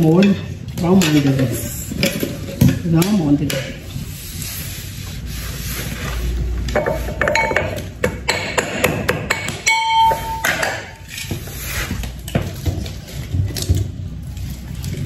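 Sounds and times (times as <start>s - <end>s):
utensils and cookware clinking: 0.0s - 4.7s, 5.8s - 15.0s
short ringing ping: 9.7s - 11.0s.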